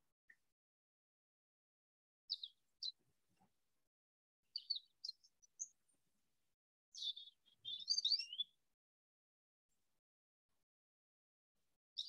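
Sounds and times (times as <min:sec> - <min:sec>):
songbirds chirping: 0:02.3 - 0:03.6, 0:04.5 - 0:06.2, 0:06.9 - 0:08.6.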